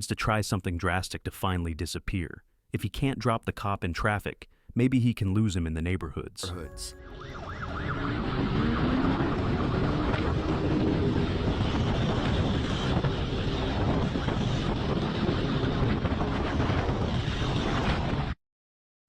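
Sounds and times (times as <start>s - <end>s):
motorcycle running: 7.5s - 13.8s
wind noise on microphone: 7.8s - 18.4s.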